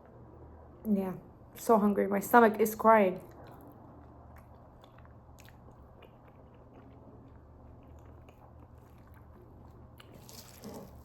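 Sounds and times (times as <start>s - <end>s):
person chewing food: 3.3s - 11.0s.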